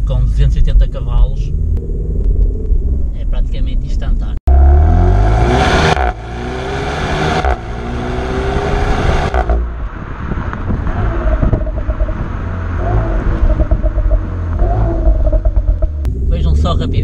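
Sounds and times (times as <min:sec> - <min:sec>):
car engine accelerating hard: 0:04.5 - 0:17.0.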